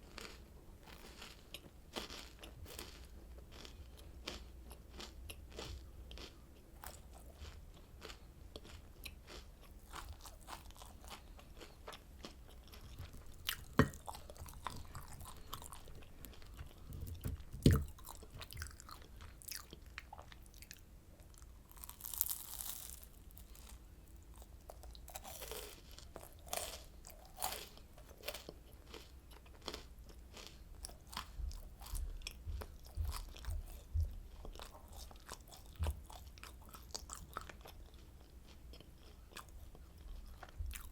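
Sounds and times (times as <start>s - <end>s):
crunching crispy candy: 0.0s - 16.6s, 17.6s - 31.9s.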